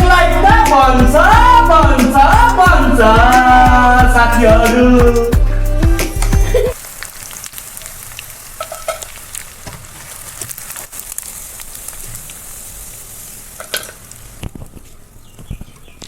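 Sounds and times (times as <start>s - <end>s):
music with singing: 0.0s - 6.8s
food sizzling in hot oil: 6.0s - 14.6s.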